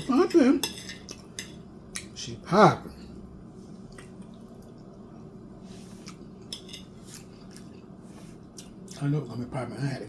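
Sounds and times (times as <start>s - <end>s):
cutlery scraping plate: 0.0s - 1.6s, 6.5s - 7.3s.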